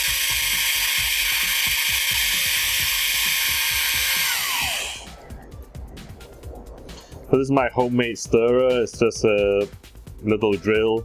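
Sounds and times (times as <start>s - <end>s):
small drill whining: 0.0s - 5.1s.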